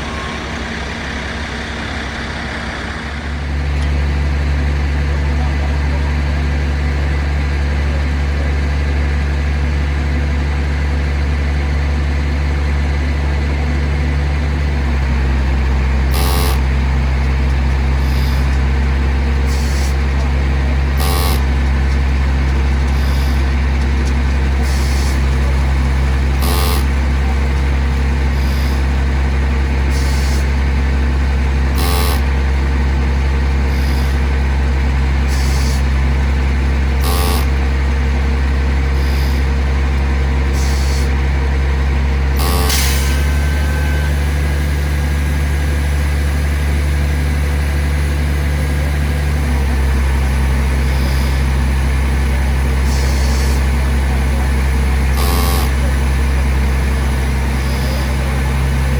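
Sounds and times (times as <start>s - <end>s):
heavy diesel engine running: 0.0s - 58.9s
sharp hissing clicks: 35.2s - 36.0s, 42.4s - 43.3s.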